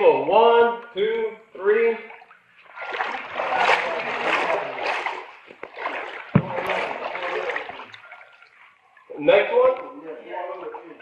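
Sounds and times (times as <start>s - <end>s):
water sloshing from wading: 2.0s - 9.2s
sharp thump: 6.3s - 6.9s.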